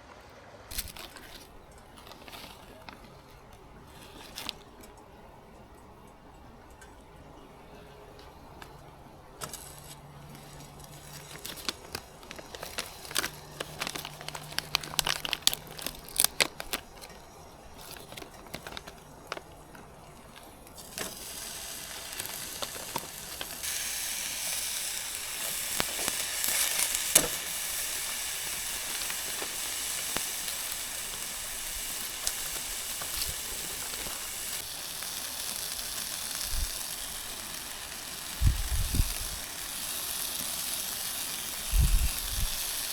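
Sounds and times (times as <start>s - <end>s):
clicks and handling noises: 0.7s - 23.8s, 25.2s - 34.7s
food frying in a pan: 8.2s - 42.9s.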